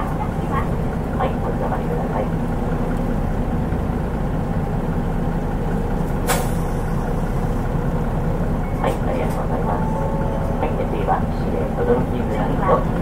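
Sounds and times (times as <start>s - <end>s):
bus diesel engine rumble: 0.0s - 13.0s
air brake hiss: 6.3s - 6.8s.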